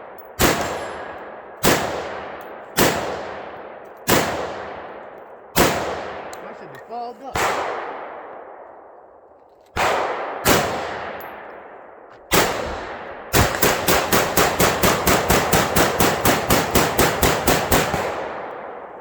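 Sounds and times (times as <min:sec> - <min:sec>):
echoing gunshots: 0:00.0 - 0:19.0
rapid gunfire: 0:12.3 - 0:18.5.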